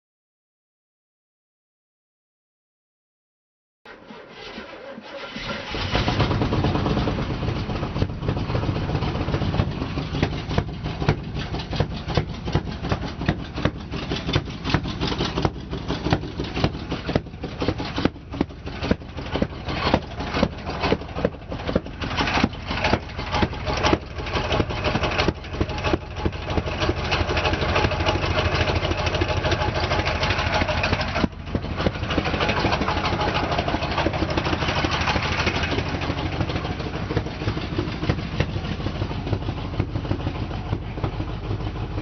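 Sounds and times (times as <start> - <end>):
pickup truck engine idling: 4.1 - 42.0.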